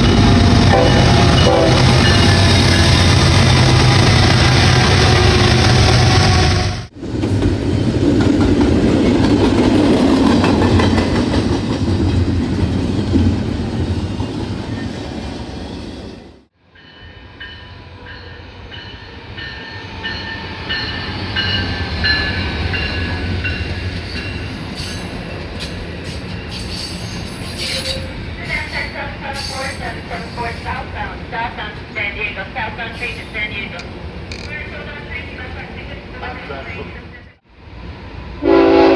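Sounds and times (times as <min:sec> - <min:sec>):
train wheels clicking on rails: 0:00.0 - 0:13.6.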